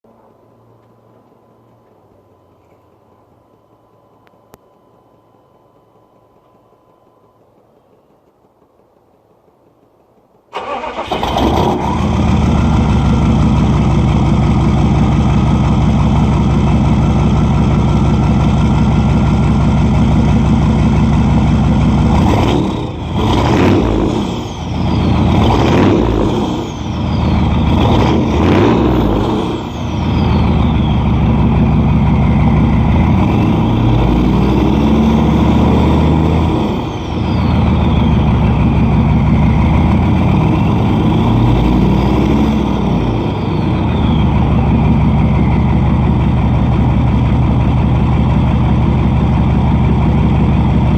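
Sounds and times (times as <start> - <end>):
loud diesel engine idling and revving: 10.6 - 50.9
high falling whine: 11.8 - 50.9.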